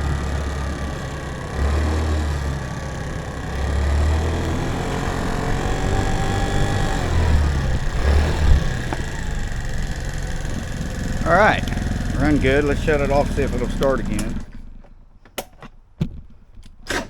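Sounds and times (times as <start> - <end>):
scooter engine revving: 0.0 - 15.2.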